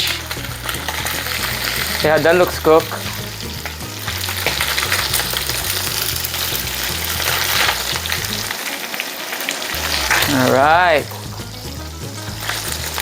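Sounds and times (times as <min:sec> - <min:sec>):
chicken frying in hot oil: 0:00.0 - 0:13.0.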